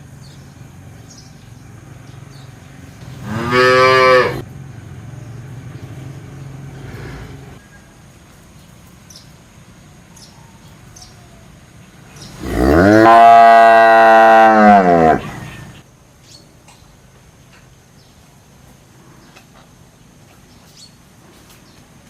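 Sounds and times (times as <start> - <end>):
cow mooing: 3.2 - 4.4, 12.4 - 15.4.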